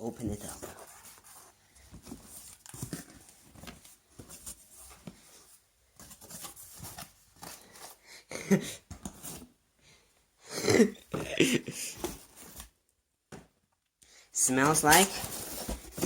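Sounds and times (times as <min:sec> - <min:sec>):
cardboard tearing and rustling: 0:14.7 - 0:16.0.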